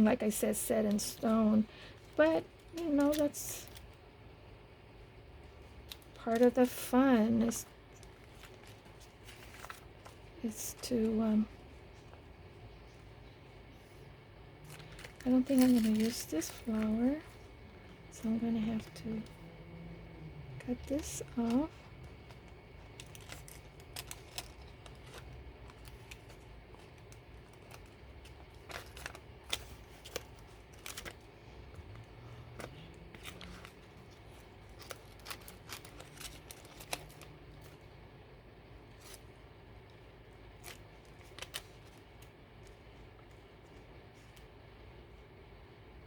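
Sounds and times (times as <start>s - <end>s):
scissors snipping paper: 20.6s - 31.2s, 31.9s - 37.7s.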